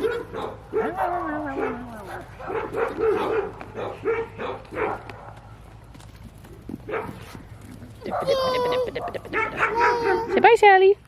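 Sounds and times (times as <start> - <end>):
dogs barking: 0.0 - 5.7, 6.8 - 7.4, 8.0 - 10.5.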